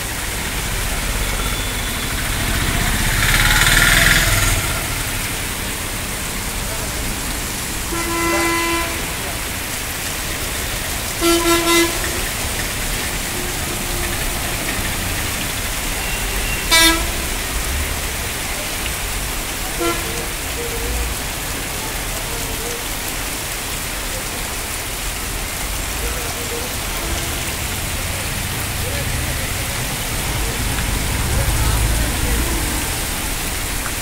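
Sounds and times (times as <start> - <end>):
heavy rain pouring: 0.0 - 34.0
vehicle horns honking: 7.9 - 9.5, 11.1 - 12.4, 15.9 - 17.7, 19.8 - 20.4, 26.9 - 27.8.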